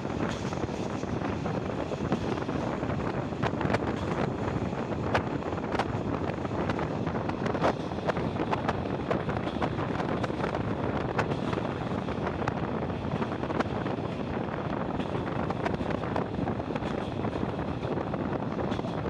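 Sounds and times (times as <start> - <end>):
train clicks and rattles: 0.0 - 19.0
train wheels rumbling: 0.0 - 19.0
wind rushing on microphone: 0.0 - 19.0.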